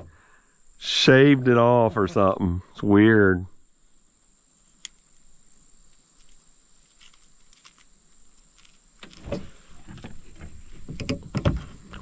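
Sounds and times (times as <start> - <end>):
steady high whine: 0.0 - 9.4
faint hiss: 0.0 - 12.0
irregular knocks and scrapes: 8.6 - 12.0.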